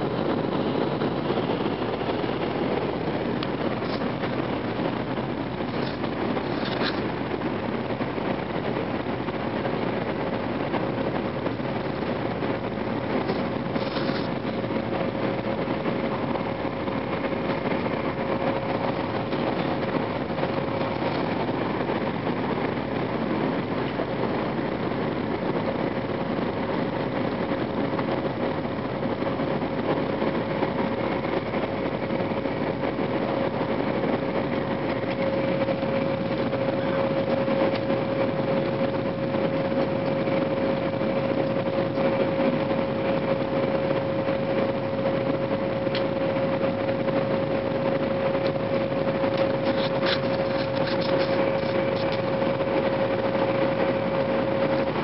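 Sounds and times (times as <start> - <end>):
constant hum: 0.0 - 55.0
train cabin rumble: 0.0 - 55.0.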